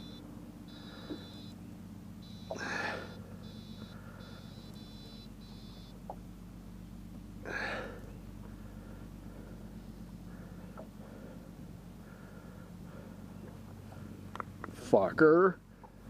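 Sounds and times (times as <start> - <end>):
high electronic beeping: 0.0 - 1.6, 2.2 - 6.0
boat motor humming: 0.0 - 16.0.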